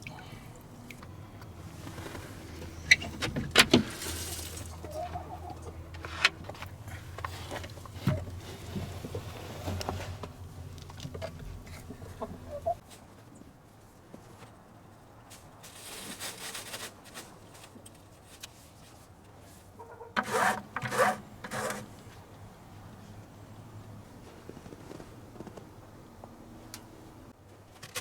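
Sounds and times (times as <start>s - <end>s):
hens clucking: 0.6s - 9.0s, 9.8s - 12.8s, 19.8s - 21.0s.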